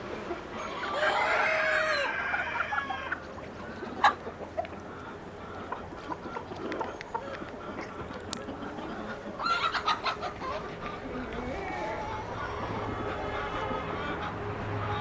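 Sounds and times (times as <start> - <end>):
chickens clucking: 0.0 - 15.0
rooster crowing: 0.6 - 3.2.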